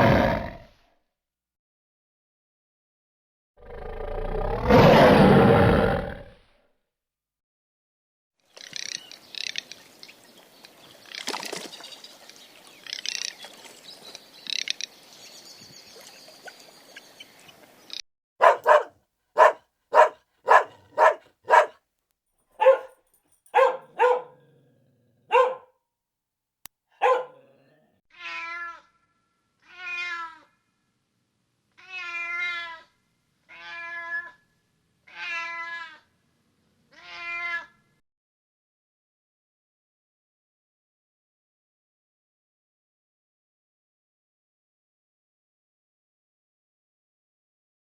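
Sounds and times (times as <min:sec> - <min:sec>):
dog barking: 0:18.4 - 0:21.8, 0:22.6 - 0:25.7, 0:27.0 - 0:27.7
cat meowing: 0:28.1 - 0:28.9, 0:29.6 - 0:30.5, 0:31.8 - 0:32.8, 0:33.5 - 0:34.4, 0:37.0 - 0:37.7.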